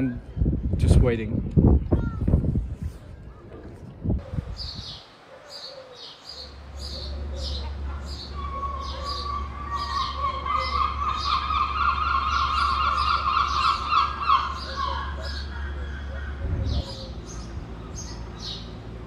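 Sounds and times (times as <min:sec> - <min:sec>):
low steady hum: 0:03.2 - 0:19.0
bird chirping: 0:04.2 - 0:19.0.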